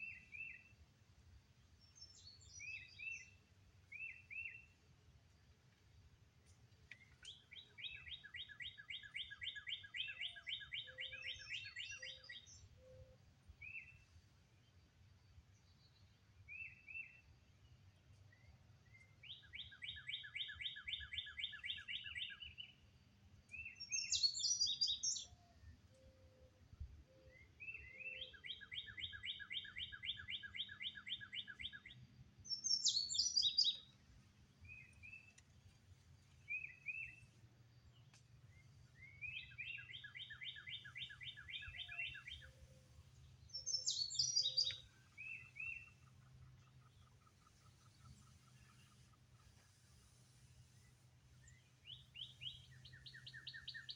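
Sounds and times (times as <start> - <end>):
songbirds trilling: 6.9 - 14.2, 23.5 - 53.9.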